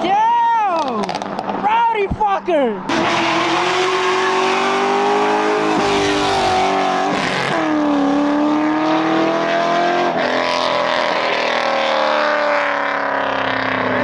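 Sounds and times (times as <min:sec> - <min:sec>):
car engine revving: 0:02.9 - 0:14.0.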